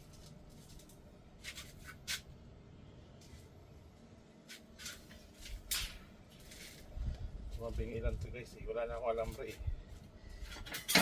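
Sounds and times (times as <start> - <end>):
metal parts scraping by hand: 10.5 - 11.0.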